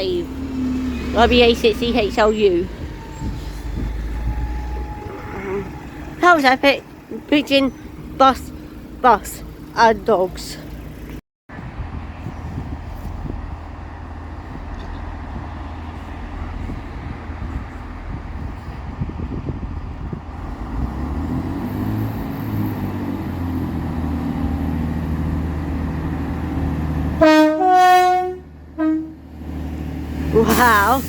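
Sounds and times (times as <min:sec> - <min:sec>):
diesel train engine: 0:00.0 - 0:31.0
two-tone train horn: 0:27.2 - 0:29.3.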